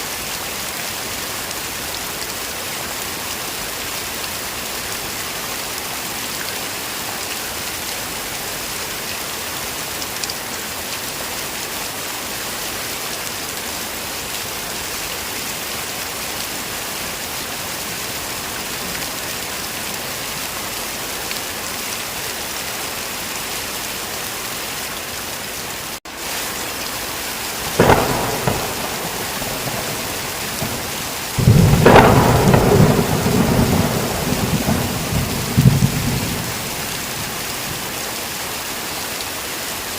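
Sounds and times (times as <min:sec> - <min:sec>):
heavy rain: 0:00.0 - 0:39.9
thunder: 0:27.6 - 0:37.9.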